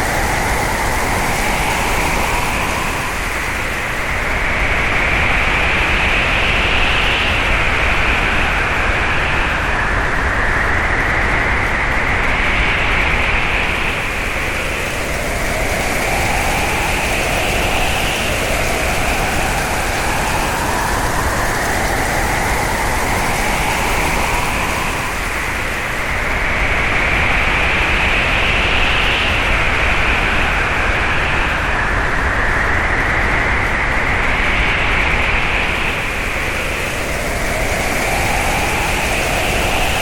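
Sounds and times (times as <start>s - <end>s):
hurricane wind howling: 0.0s - 40.0s.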